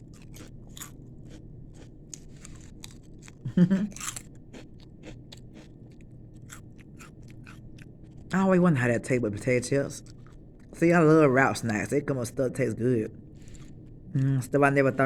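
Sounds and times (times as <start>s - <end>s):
chewing crunchy chips: 0.0s - 8.5s, 9.4s - 11.9s, 13.2s - 14.3s.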